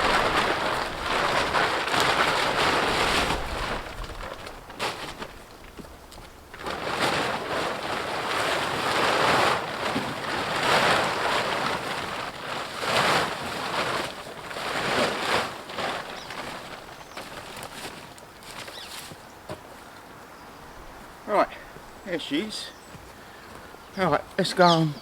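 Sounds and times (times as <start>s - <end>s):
cover sheet rustling: 0.0s - 19.7s.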